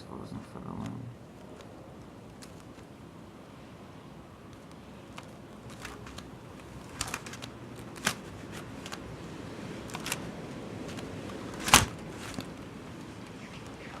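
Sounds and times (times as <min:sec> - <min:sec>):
blizzard wind hissing: 0:08.2 - 0:14.0.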